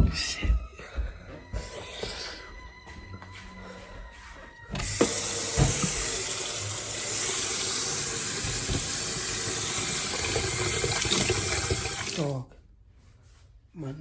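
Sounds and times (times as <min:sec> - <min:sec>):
tap water running into sink: 0:04.8 - 0:12.3.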